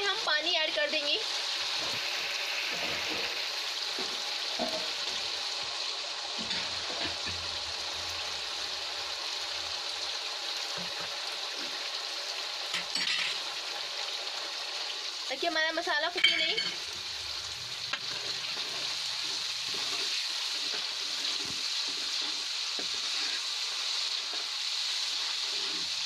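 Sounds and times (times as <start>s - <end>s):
food sizzling in oil: 0.0s - 26.0s
ladle scraping pan: 17.9s - 26.0s.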